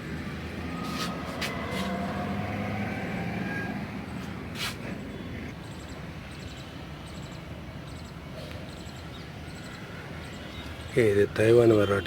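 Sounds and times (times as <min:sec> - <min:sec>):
vehicle engine hum: 0:00.0 - 0:12.0
faint high chirping: 0:05.0 - 0:11.1.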